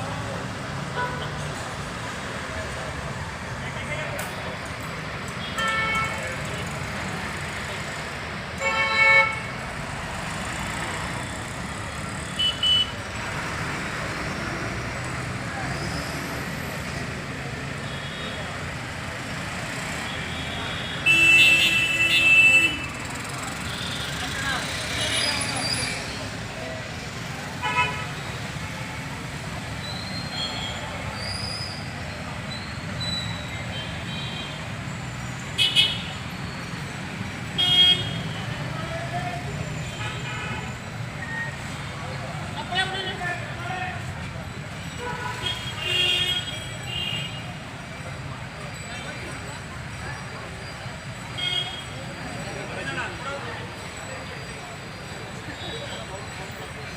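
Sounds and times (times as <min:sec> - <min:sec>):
road traffic rumble: 0:00.0 - 0:56.9
vehicle horn: 0:37.6 - 0:38.3.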